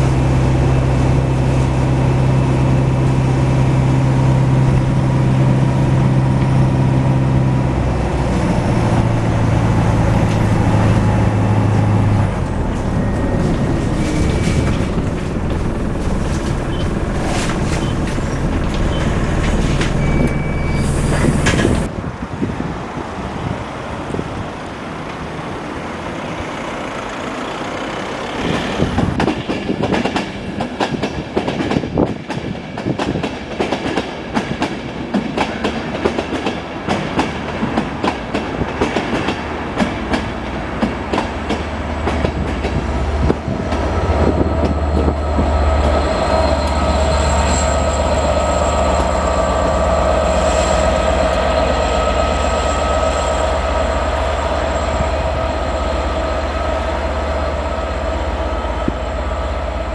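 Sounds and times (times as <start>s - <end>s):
diesel locomotive engine drone: 0.0s - 59.9s
train wheels clicking over rail joints: 8.1s - 21.9s, 28.1s - 57.6s.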